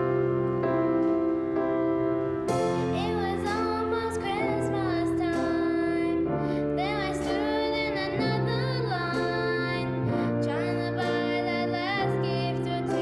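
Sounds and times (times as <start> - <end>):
piano accompaniment: 0.0 - 13.0
children's choir singing: 2.8 - 13.0.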